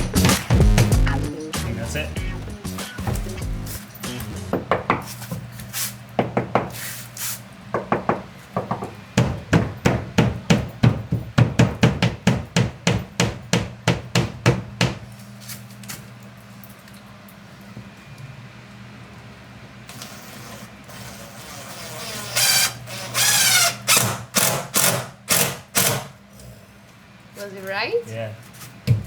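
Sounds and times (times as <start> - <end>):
steady low hum: 0.0 - 6.2
hammer striking wood: 4.5 - 5.1, 6.2 - 6.8, 7.8 - 15.0.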